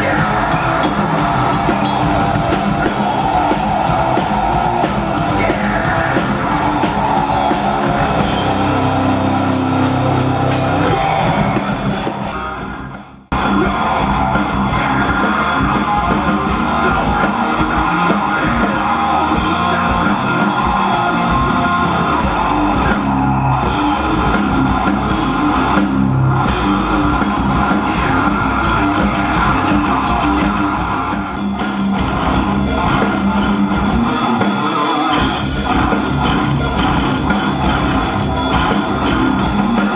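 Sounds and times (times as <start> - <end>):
person singing: 0.0 - 25.4
distorted electric guitars: 0.0 - 39.9
drum kit: 0.0 - 39.9.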